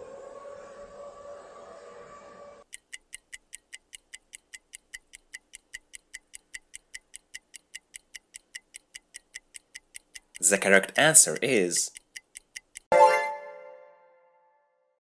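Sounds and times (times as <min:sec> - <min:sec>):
air raid siren: 0:00.0 - 0:02.6
clock ticking: 0:02.6 - 0:13.2.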